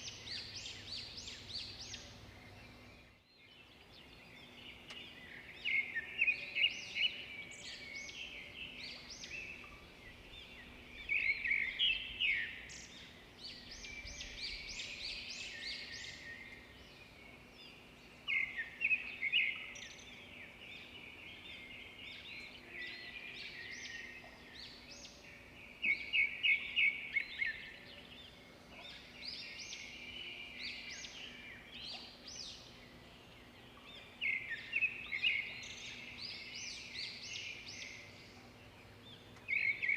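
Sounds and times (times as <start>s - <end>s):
birds twittering: 0.0s - 39.9s.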